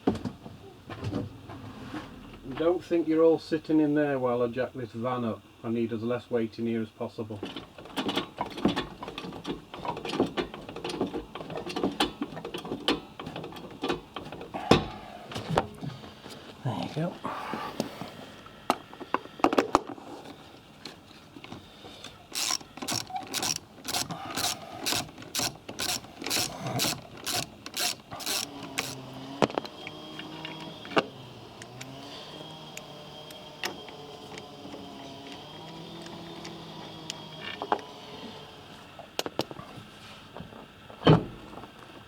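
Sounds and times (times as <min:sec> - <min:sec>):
vehicle jack clanking: 0:07.5 - 0:16.1, 0:22.2 - 0:38.5.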